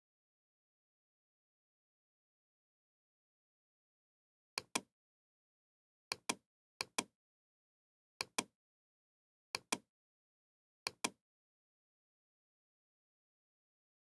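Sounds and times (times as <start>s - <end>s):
pairs of sharp clicks: 4.6s - 4.9s, 6.1s - 7.1s, 8.2s - 8.5s, 9.6s - 9.8s, 10.9s - 11.2s.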